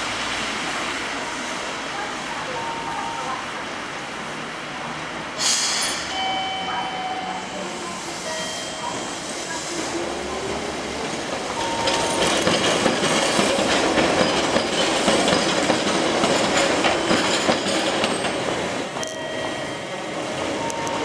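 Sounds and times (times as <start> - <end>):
electric train running: 6.0 - 21.0
wheels clattering over rail joints: 11.0 - 19.9.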